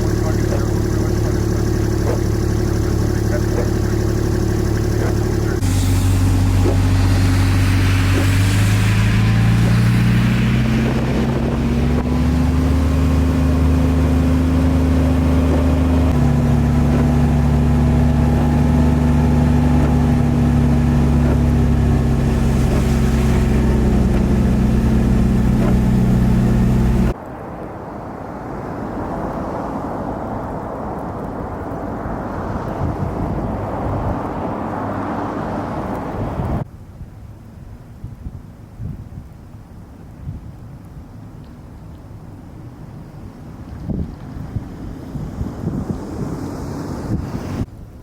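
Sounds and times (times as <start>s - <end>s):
vehicle engine revving and shifting: 0.0s - 27.2s
rushing noise: 0.0s - 36.6s.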